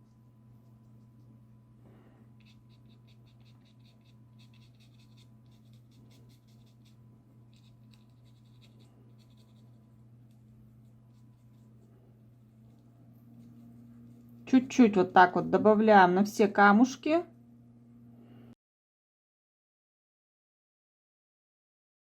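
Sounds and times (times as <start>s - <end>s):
low steady hum: 0.0s - 18.6s
bristle brush scrubbing paper: 2.4s - 14.7s.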